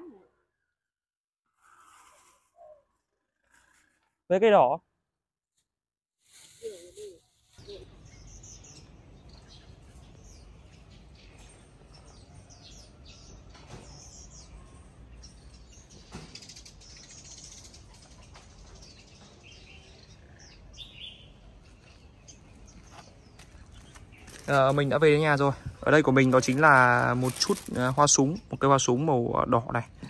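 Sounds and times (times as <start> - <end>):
small birds chirping: 6.3 - 30.0.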